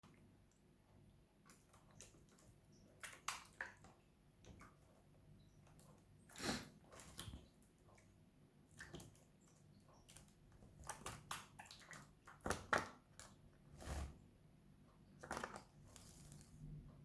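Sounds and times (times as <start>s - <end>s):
bird splashing water: 1.4s - 4.8s, 6.8s - 12.9s.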